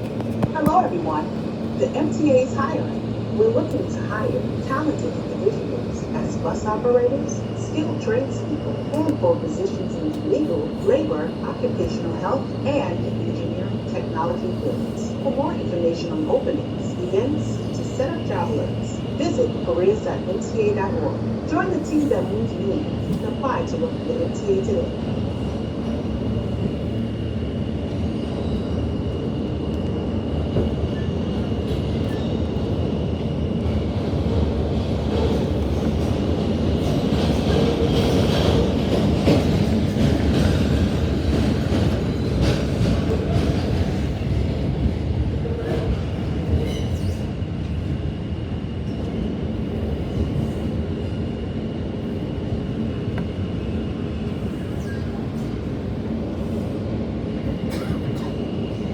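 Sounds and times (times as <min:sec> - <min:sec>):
train wheels rumbling on rails: 0:00.0 - 0:58.9.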